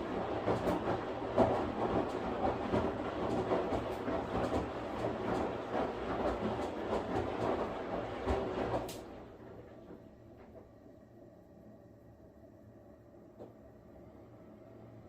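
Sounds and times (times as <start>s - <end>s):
washing machine running: 0.0s - 11.6s.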